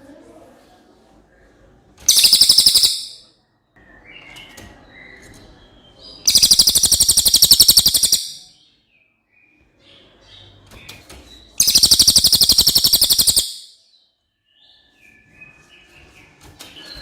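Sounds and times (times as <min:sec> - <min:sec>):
soft bird chirps: 0:02.0 - 0:17.0
songbird fast trills: 0:02.1 - 0:03.3, 0:06.3 - 0:08.5, 0:11.6 - 0:13.8.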